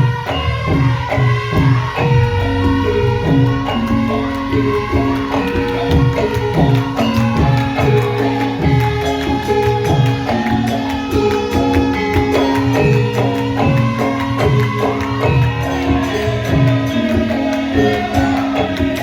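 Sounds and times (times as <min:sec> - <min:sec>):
hand drum strokes: 0:00.0 - 0:19.0
metallophone notes: 0:00.0 - 0:19.0.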